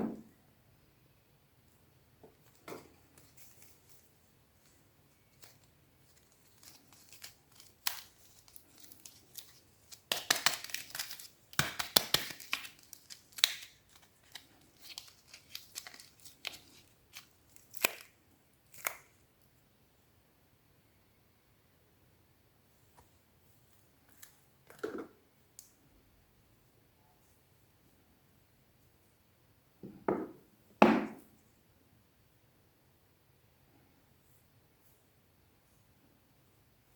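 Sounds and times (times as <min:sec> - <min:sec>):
packaging crinkling and tearing: 0:05.2 - 0:19.1.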